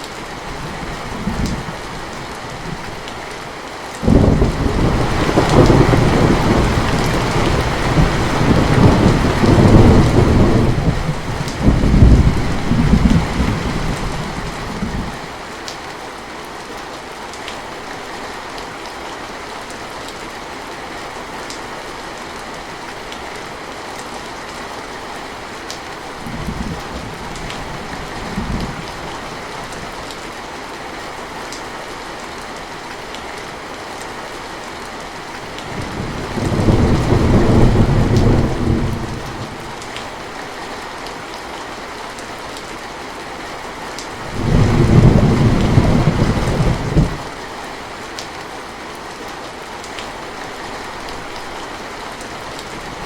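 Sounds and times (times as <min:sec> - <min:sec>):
steady rain: 0:00.0 - 0:53.0
thunder rumbling: 0:04.0 - 0:15.2, 0:35.7 - 0:39.9, 0:44.2 - 0:47.4.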